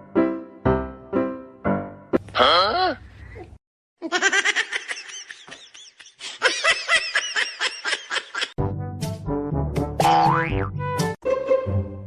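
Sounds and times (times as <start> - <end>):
music: 0.0 - 2.2, 8.6 - 12.0
rapid giggling laughter: 4.1 - 8.6.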